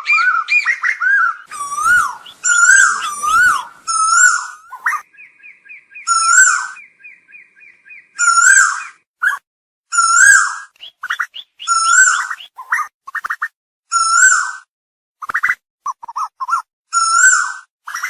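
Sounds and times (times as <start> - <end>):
koel whistled call: 1.4 - 9.0, 10.0 - 12.9.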